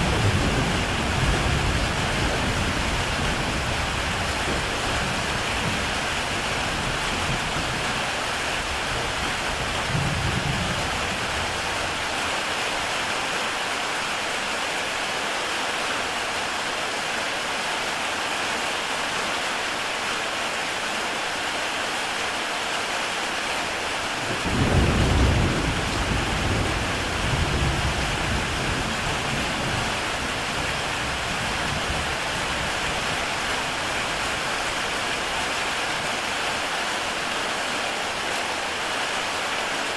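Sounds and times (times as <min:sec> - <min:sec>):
thunder rumbling: 0:00.0 - 0:08.0, 0:09.0 - 0:12.1, 0:24.3 - 0:33.9
heavy rain on a tile roof: 0:00.0 - 0:39.9.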